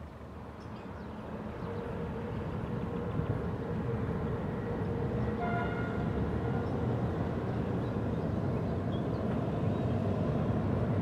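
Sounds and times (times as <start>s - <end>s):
train rumbling over bridge: 0.0s - 11.0s.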